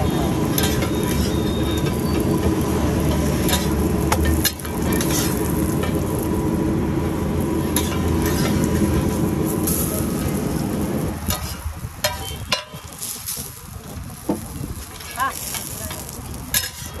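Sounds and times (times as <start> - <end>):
flatbread sizzling in oil: 0.0 - 17.0
metal spatula scraping griddle: 0.2 - 6.2, 7.6 - 10.4, 11.2 - 13.6, 14.8 - 17.0.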